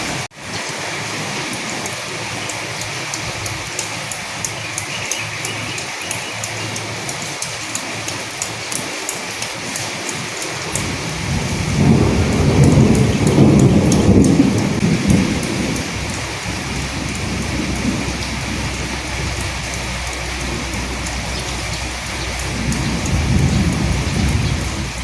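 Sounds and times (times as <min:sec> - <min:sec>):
rain drops ticking: 0:00.0 - 0:25.0
steady rain falling: 0:00.0 - 0:25.0
low roll of thunder: 0:10.8 - 0:25.0.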